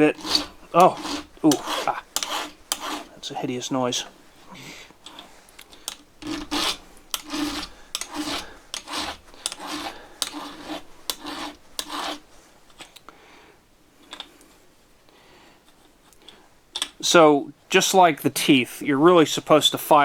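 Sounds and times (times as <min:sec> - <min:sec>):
file rasping on saw chain: 0:00.0 - 0:03.3, 0:05.0 - 0:12.3.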